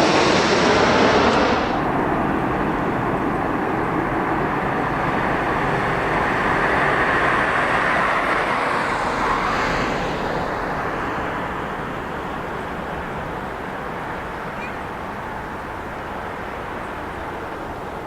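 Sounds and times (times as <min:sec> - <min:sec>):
jet engine rush: 0:00.0 - 0:18.0.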